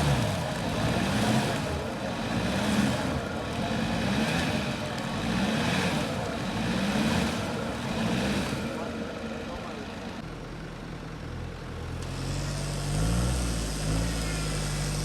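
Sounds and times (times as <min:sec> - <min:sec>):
off-road engine revving: 0:00.0 - 0:10.2, 0:11.4 - 0:15.0.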